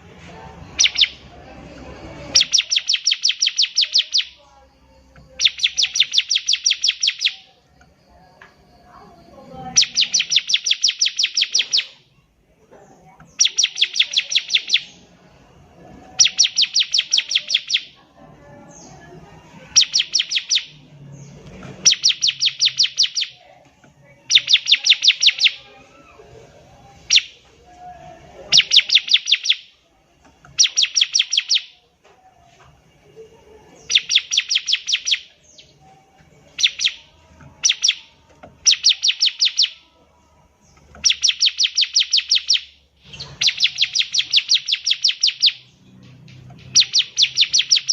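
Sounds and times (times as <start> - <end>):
bird singing sharp high notes: 0.7 - 4.4, 5.0 - 7.5, 9.2 - 12.1, 13.2 - 15.1, 16.0 - 18.0, 18.7 - 23.4, 24.2 - 25.8, 27.0 - 27.4, 28.5 - 29.8, 30.5 - 31.8, 33.8 - 35.8, 36.4 - 39.8, 40.8 - 47.9.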